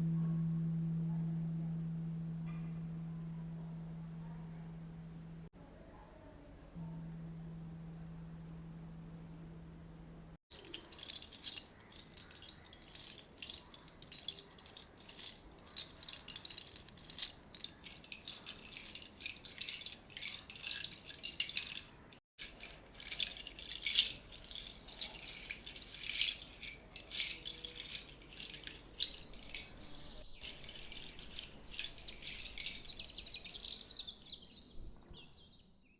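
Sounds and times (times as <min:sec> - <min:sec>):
shaker rattling: 0:10.5 - 0:35.4
bird-like chirps: 0:28.8 - 0:35.9.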